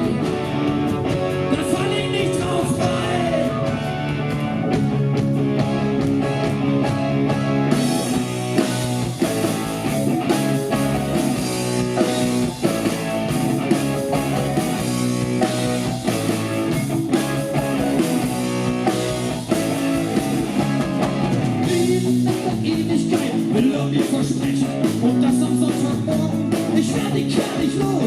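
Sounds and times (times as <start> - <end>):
bass guitar: 0.0 - 28.0
drum kit beat: 0.0 - 28.0
electric guitars: 0.0 - 28.0.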